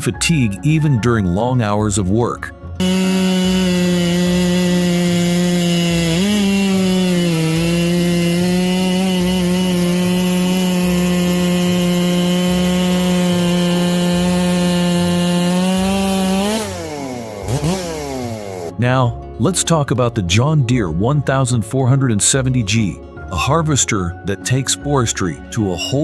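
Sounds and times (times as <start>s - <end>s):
chainsaw cutting at full throttle: 2.8s - 18.8s.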